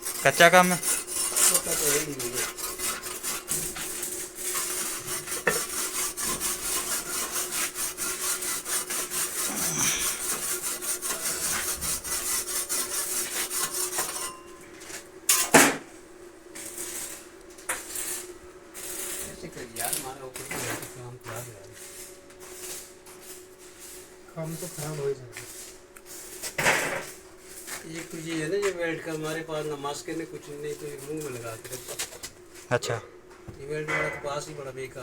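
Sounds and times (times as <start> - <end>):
hand saw cutting: 0.0 - 14.4.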